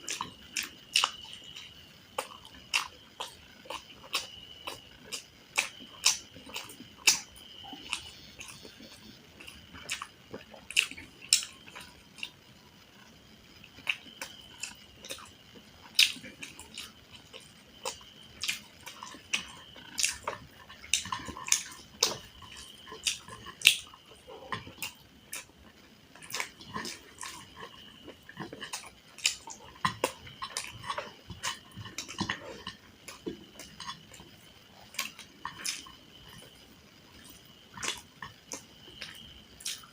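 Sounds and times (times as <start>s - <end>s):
chewing with wet mouth smacks: 0.0s - 12.4s, 13.0s - 39.9s
crunchy clicks of chewing: 0.0s - 39.9s.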